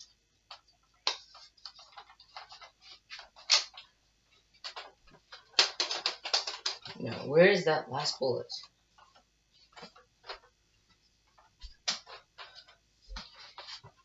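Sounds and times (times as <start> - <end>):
plastic toy blaster clicks and rattles: 4.6 - 7.0.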